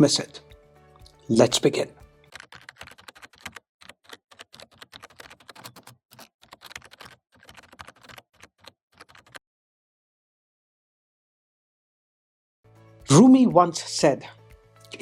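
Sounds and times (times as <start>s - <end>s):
rapid irregular clicking: 2.2s - 9.4s.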